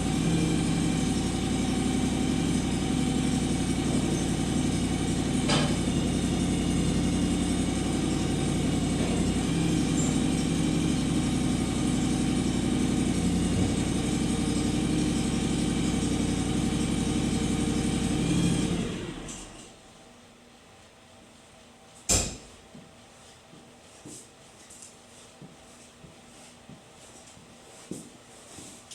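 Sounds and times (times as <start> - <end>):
garden tractor engine running: 0.0 - 19.7.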